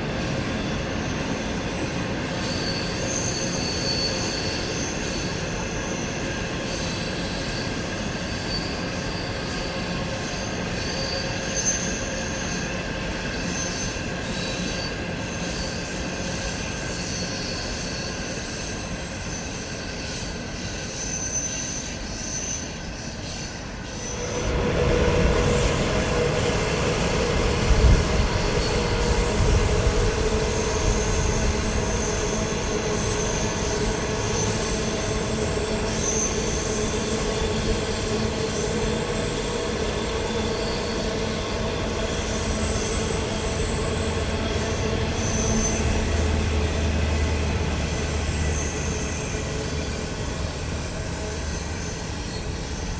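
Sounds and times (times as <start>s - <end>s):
train rolling on rails: 0.0s - 52.9s.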